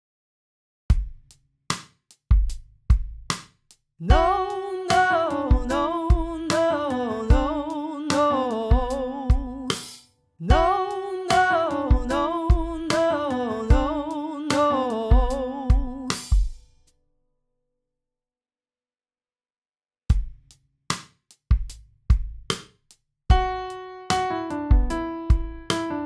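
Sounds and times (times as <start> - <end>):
drum beat: 0.9 - 16.8, 20.1 - 26.0
person singing vocal runs: 4.0 - 9.8, 10.4 - 16.4.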